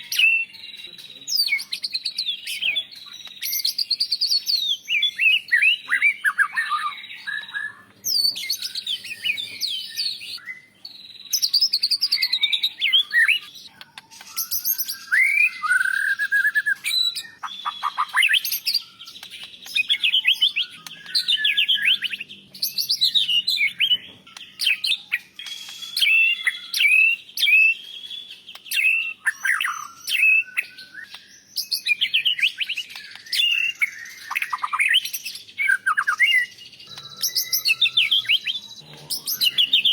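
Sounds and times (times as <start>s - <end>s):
bird singing whistles and chatter: 0.0s - 39.9s.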